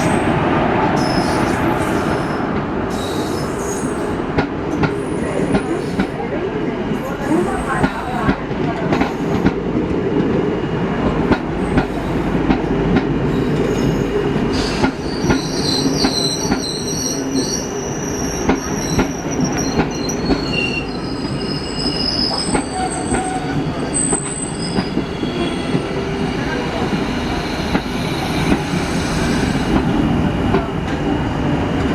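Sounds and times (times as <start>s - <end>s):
train rumbling on rails: 0.0s - 31.9s
high-pitched wheel squeal: 14.6s - 25.8s.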